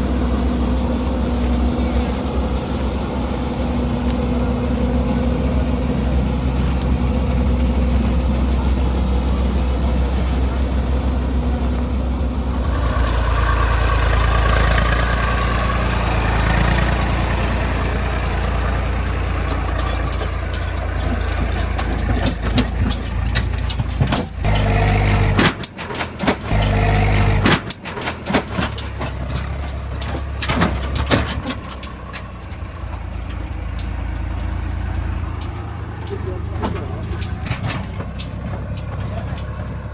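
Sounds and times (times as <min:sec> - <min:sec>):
diesel engine running: 0:00.0 - 0:39.9
sharp clanks and knocks: 0:12.6 - 0:39.9.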